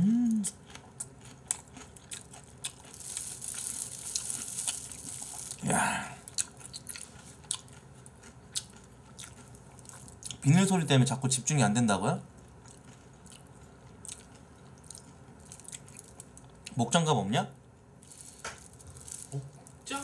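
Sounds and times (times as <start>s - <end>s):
crunchy chewing: 0.4s - 10.5s, 12.3s - 16.8s, 18.0s - 19.9s
plastic gloves crinkling: 2.4s - 5.7s, 14.8s - 16.4s, 18.0s - 20.0s.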